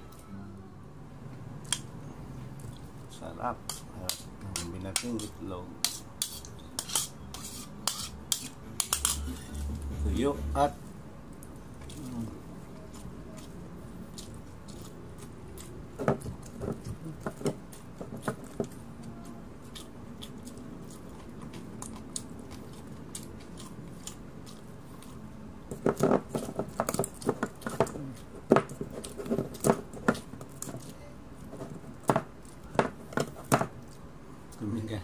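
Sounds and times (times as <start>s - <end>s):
chewing and crunching food: 11.2s - 34.8s.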